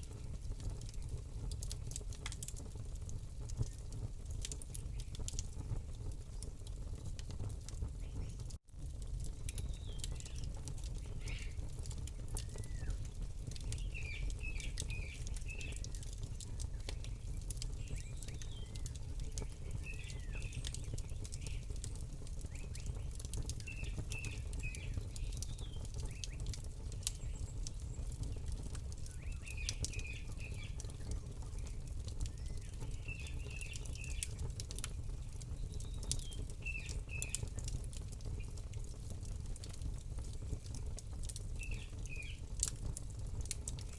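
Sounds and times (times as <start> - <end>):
campfire crackling and popping: 0.0 - 43.9
small birds chirping: 4.7 - 5.4, 7.9 - 8.5, 9.3 - 38.7, 41.3 - 42.7.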